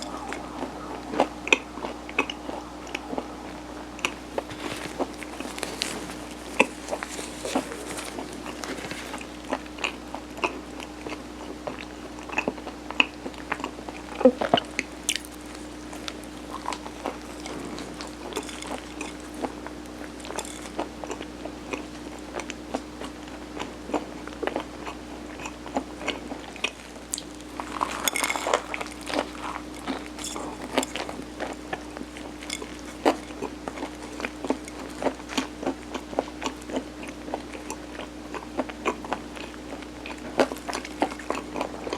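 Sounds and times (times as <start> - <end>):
person chewing with wet smacks: 4.0 - 41.9.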